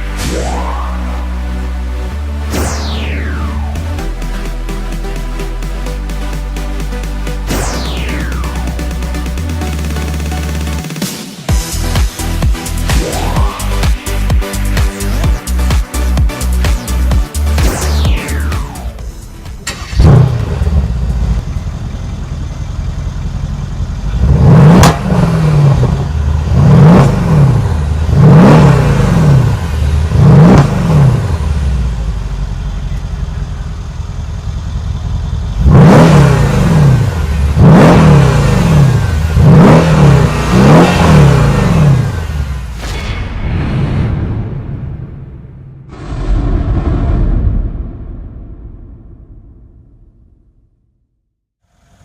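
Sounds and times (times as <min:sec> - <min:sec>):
car engine starting: 0:00.0 - 0:42.8
car engine idling and revving: 0:00.0 - 0:42.9, 0:51.6 - 0:52.0.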